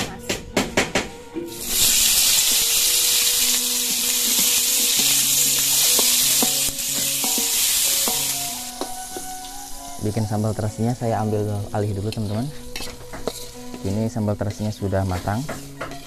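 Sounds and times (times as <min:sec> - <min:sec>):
food sizzling in hot oil: 0:01.5 - 0:16.0
metal spatula stirring: 0:04.3 - 0:08.3, 0:12.0 - 0:16.0.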